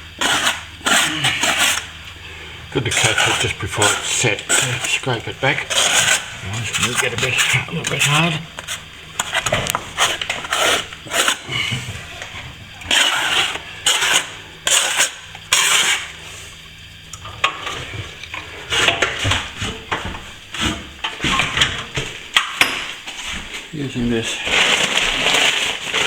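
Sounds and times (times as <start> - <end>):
metal tool scraping plaster: 0.2 - 1.9, 2.8 - 12.1, 12.8 - 16.1.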